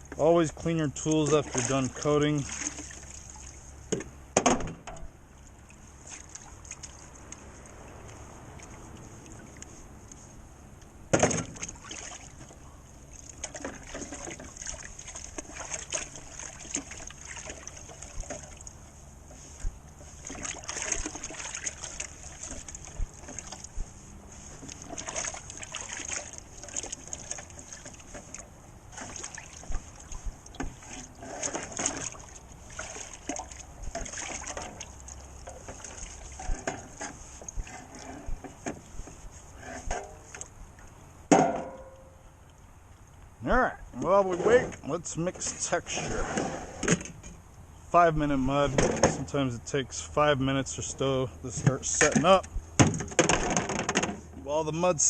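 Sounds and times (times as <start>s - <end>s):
water sloshing and splashing: 0.0s - 10.5s, 11.1s - 43.4s, 44.0s - 47.5s, 50.9s - 55.0s
tools scraping: 39.4s - 40.4s.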